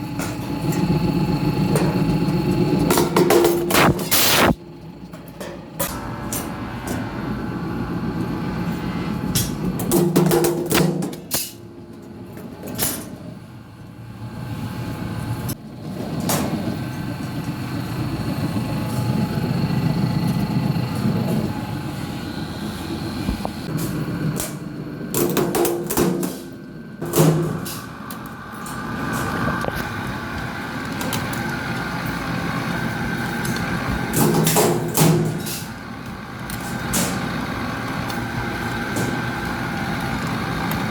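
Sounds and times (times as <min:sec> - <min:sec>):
workshop machinery running: 0:00.0 - 0:40.9.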